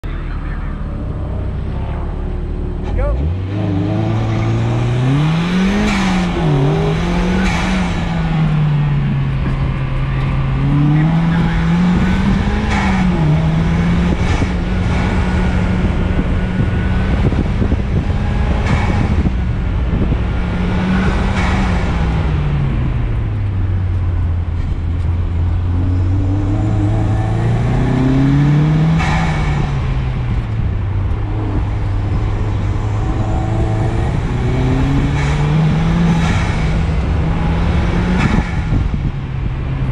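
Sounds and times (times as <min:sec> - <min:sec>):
car engine accelerating hard: 0:00.0 - 0:39.9.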